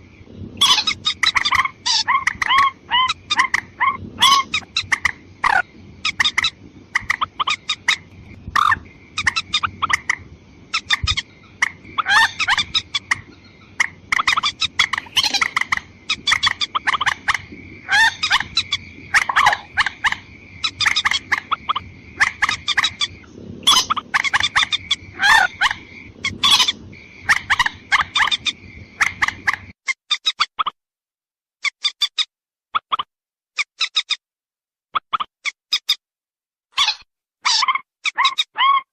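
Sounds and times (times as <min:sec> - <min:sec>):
bird clucking calls: 0:00.6 - 0:29.7.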